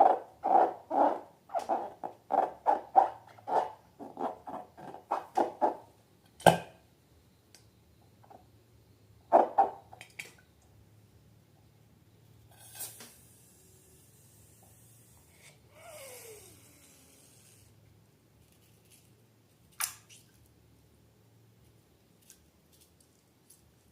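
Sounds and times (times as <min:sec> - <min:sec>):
rubber balloon squeaking: 0:00.4 - 0:05.8.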